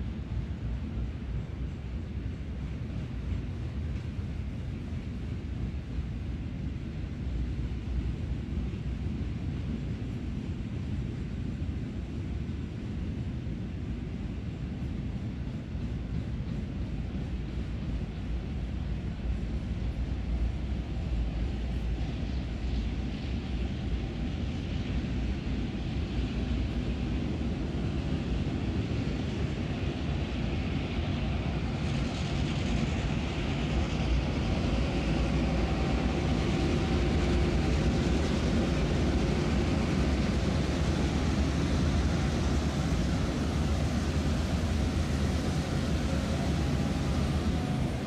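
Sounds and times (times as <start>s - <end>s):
electric train passing: 29.3s - 48.0s.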